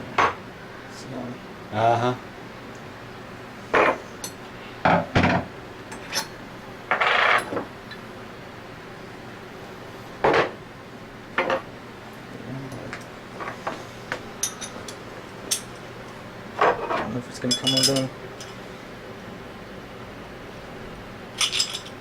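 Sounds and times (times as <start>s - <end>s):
metal tools clinking and knocking: 16.6s - 18.6s, 21.4s - 22.0s.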